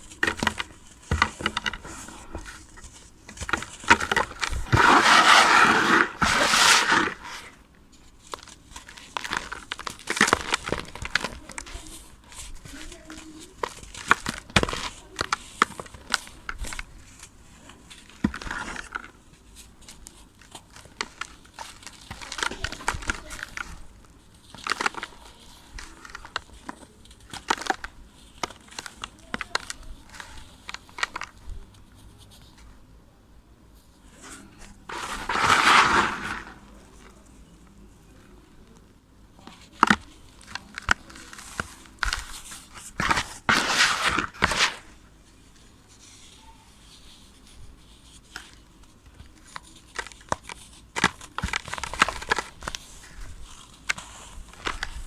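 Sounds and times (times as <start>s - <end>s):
sand crumbling: 3.8s - 7.6s, 34.2s - 37.1s, 42.9s - 45.1s.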